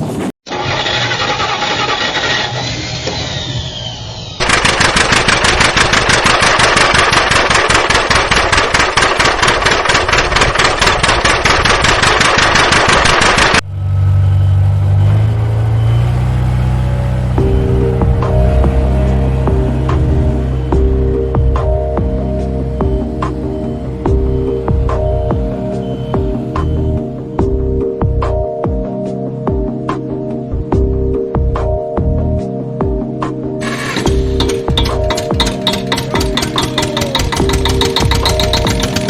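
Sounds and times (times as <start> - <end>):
vehicle engine: 0.0 - 28.5, 33.6 - 39.0
fast even chugging: 4.4 - 13.6, 33.6 - 39.0
low droning tones: 13.6 - 28.6.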